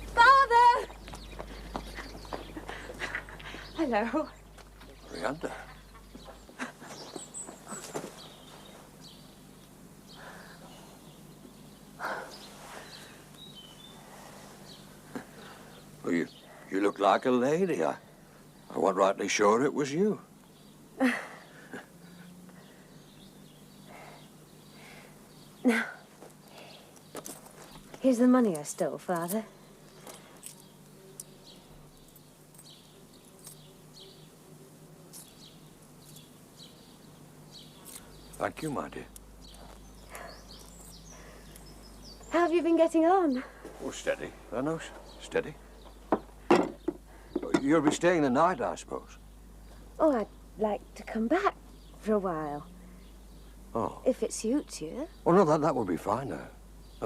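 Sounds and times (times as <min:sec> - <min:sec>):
low steady hum: 0:00.0 - 0:57.0
small birds chirping: 0:00.0 - 0:57.0
soft knocks: 0:46.1 - 0:48.0.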